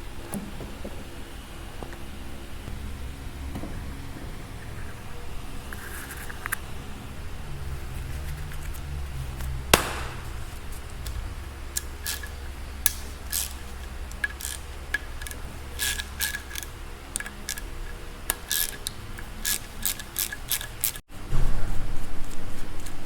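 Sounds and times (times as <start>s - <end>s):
steady low hum: 0.0s - 23.0s
light rubbing of metal parts: 3.4s - 21.0s
small metallic clicks: 11.0s - 21.0s.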